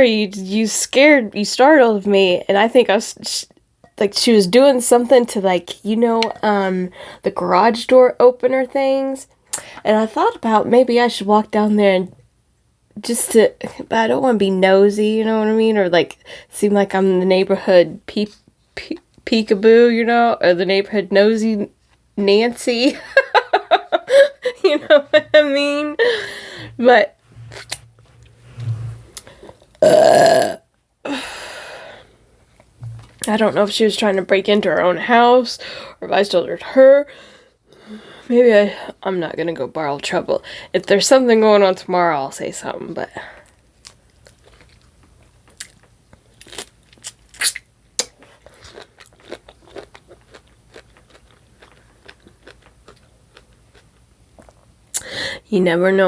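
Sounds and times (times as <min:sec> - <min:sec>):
breathy exhale: 0:26.1 - 0:26.8
person burping loudly: 0:29.8 - 0:30.6
person biting and chewing: 0:46.4 - 0:54.6.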